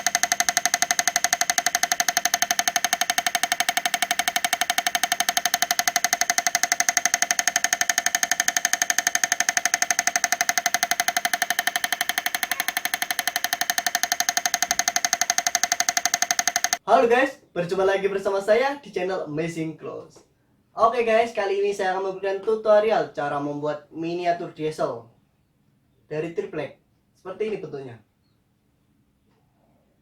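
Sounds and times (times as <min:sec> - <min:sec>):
model engine knocking: 0:00.0 - 0:16.8.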